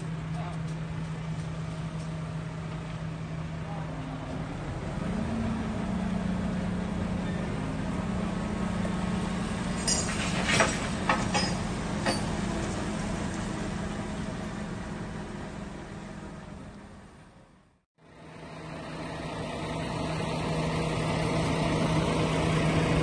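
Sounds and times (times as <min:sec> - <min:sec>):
engine running: 0:00.0 - 0:23.0
sharp metallic clanks: 0:09.8 - 0:12.4.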